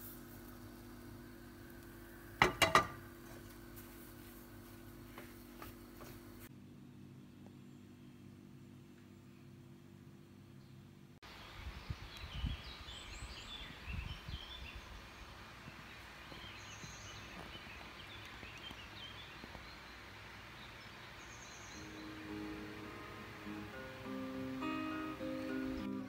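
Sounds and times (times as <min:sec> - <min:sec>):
steady background hiss: 0:00.0 - 0:26.0
songbirds chirping: 0:06.8 - 0:26.0.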